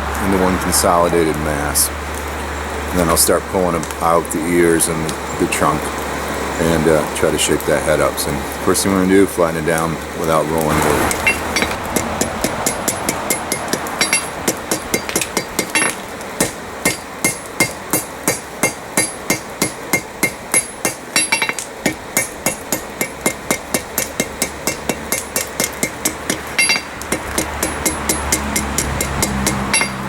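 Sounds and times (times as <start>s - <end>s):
hammer striking hot steel: 10.5s - 30.0s
anvil ringing: 11.2s - 11.8s, 12.6s - 30.0s.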